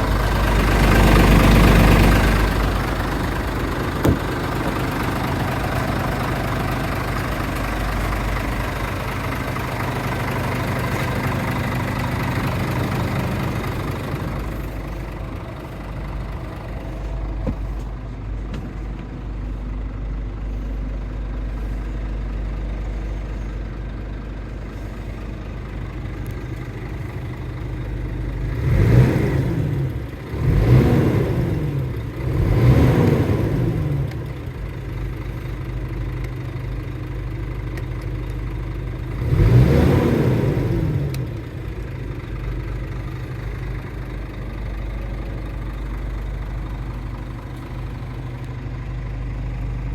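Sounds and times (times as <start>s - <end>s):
truck engine revving: 0.0s - 17.9s, 28.4s - 34.4s, 39.1s - 41.7s
diesel truck engine idling: 0.0s - 49.9s.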